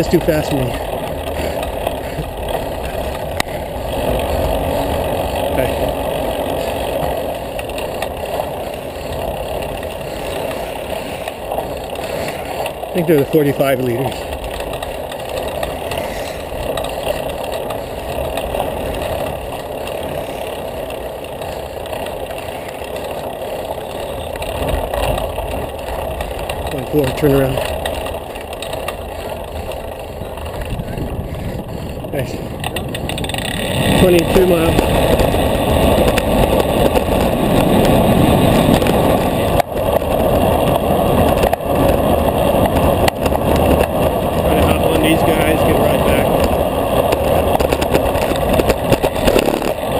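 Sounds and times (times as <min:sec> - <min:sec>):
road noise: 0:00.0 - 0:49.9
wind rumble on microphone: 0:00.0 - 0:49.9.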